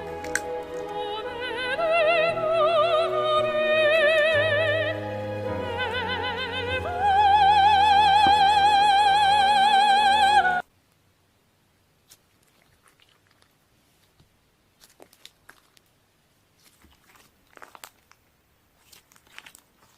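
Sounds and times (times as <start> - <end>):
soprano singing operatically: 0.0 - 10.6.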